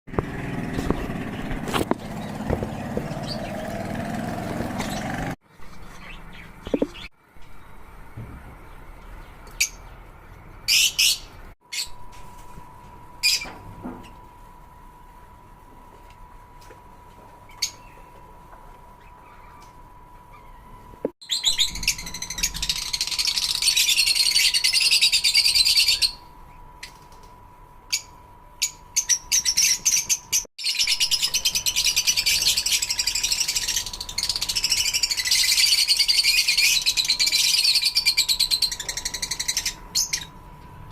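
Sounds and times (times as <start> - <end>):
lovebirds chirping: 0.2 - 12.0.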